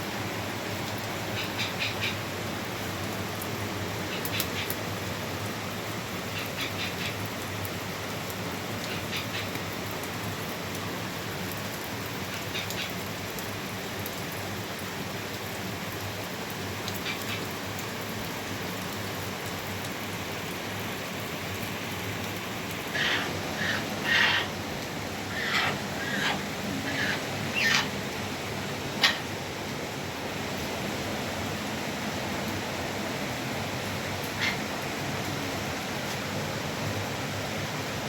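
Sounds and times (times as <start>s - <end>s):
water hissing: 22.4s - 29.4s.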